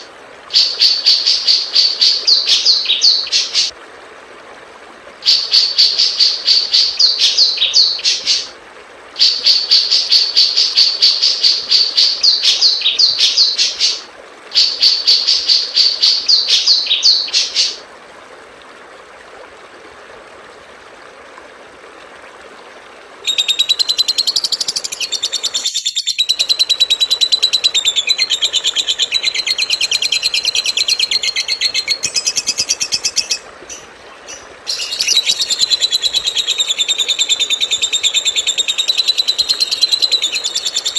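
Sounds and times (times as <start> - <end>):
songbird trilling song: 0.6 - 3.7, 5.3 - 8.4, 14.6 - 17.8, 23.3 - 40.9
high chattering birdsong: 23.3 - 40.9.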